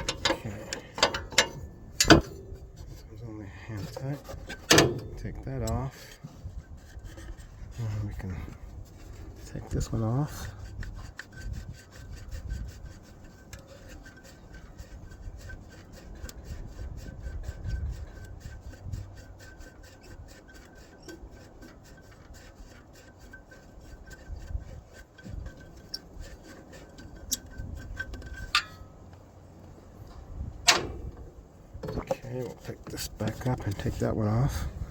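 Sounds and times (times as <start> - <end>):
bolt clunk: 0.0 - 2.4, 4.4 - 5.2, 30.1 - 32.2.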